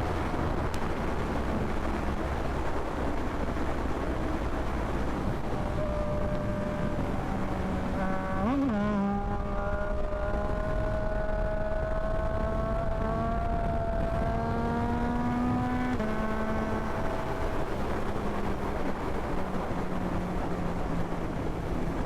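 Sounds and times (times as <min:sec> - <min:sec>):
wind rush on microphone: 0:00.0 - 0:22.0
motorcycle engine revving: 0:05.4 - 0:18.6.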